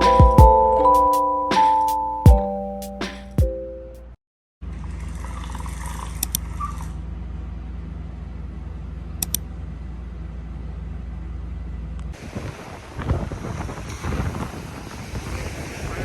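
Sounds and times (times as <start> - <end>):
wind buffeting microphone: 12.2 - 16.0.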